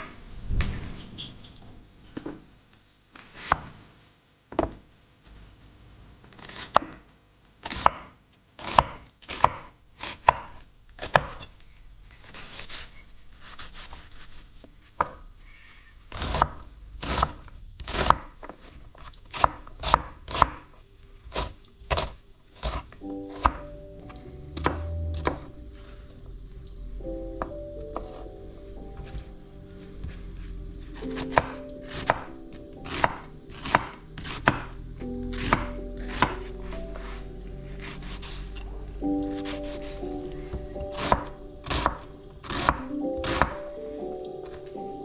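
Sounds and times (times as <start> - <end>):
knife chopping on cutting board: 24.6 - 25.5, 31.0 - 34.7, 35.3 - 37.2, 39.3 - 43.6.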